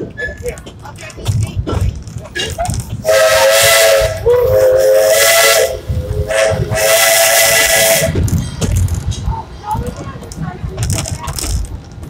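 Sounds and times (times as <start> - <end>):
steam hissing: 3.0 - 8.4
steam locomotive whistle: 3.1 - 8.2.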